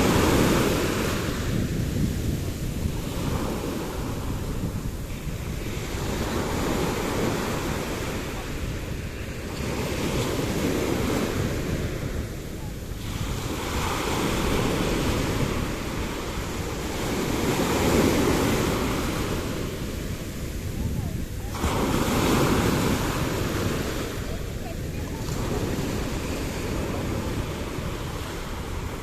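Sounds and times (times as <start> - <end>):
sea waves washing ashore: 0.0 - 29.0
wind on microphone: 0.0 - 29.0.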